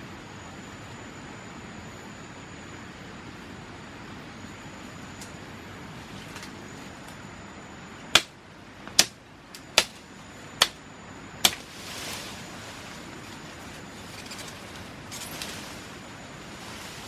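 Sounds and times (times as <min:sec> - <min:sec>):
knife chopping into wood: 0:08.9 - 0:09.2, 0:11.4 - 0:11.6
short rustle: 0:11.6 - 0:17.0.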